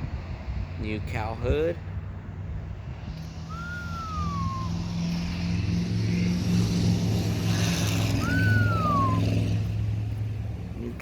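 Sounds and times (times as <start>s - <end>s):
high whistle falling in pitch: 3.5s - 5.0s, 8.2s - 9.3s.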